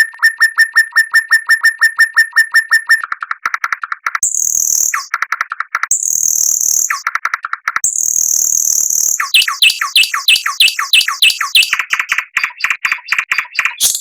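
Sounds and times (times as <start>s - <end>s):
songbird singing: 4.2s - 5.2s, 5.9s - 7.1s, 7.8s - 14.0s.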